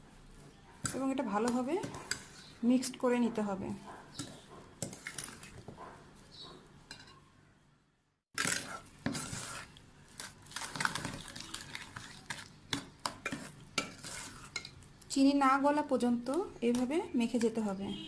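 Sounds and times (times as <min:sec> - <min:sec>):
utensil stirring batter in bowl: 0:00.8 - 0:03.3, 0:04.0 - 0:07.1, 0:08.4 - 0:15.2.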